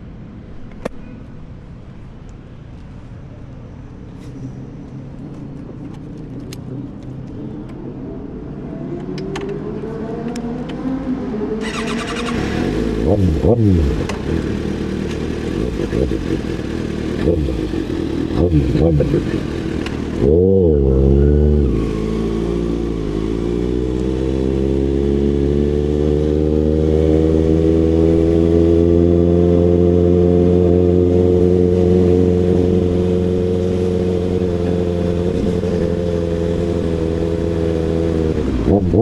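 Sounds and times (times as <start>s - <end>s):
motorcycle engine revving: 11.6s - 39.0s.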